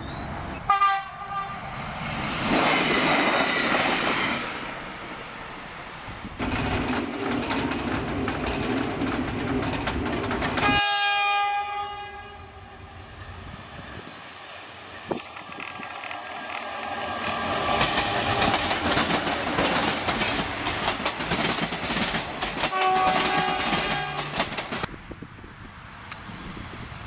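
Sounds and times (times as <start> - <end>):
train rolling: 0.0 - 27.0
train horn blast: 0.6 - 1.7, 10.6 - 13.2, 22.6 - 24.4
locomotive cab din: 6.1 - 13.4, 15.1 - 24.9
wheels clattering over rails: 6.4 - 10.8, 17.3 - 24.9.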